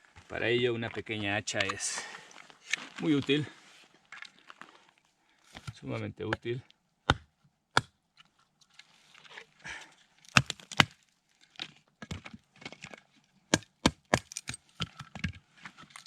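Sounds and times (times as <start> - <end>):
wooden knocks and cracks: 10.3 - 16.0.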